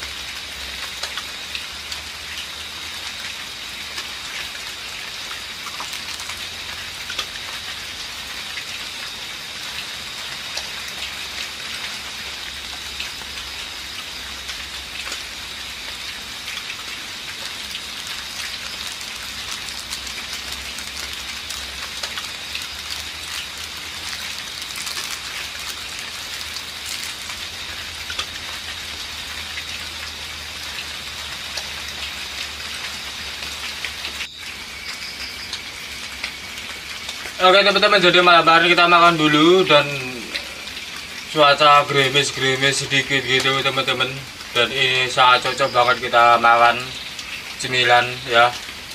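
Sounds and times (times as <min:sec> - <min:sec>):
light drizzle falling: 0:00.0 - 0:48.9.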